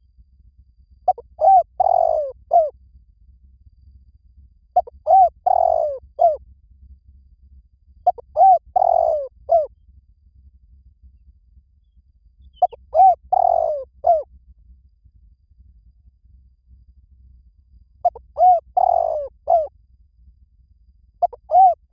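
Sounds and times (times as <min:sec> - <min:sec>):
dove cooing: 0:01.1 - 0:02.7, 0:04.8 - 0:06.4, 0:08.1 - 0:09.7, 0:12.6 - 0:14.2, 0:18.0 - 0:19.7, 0:21.2 - 0:21.9.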